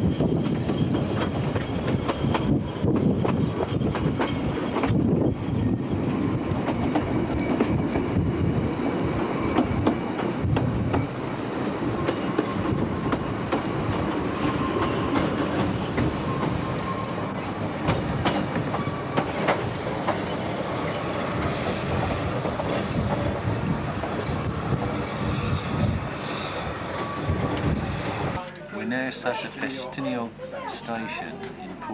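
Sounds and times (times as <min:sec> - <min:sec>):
train carriages rumbling: 0:00.0 - 0:30.0
faint wheel squeal: 0:16.0 - 0:17.6.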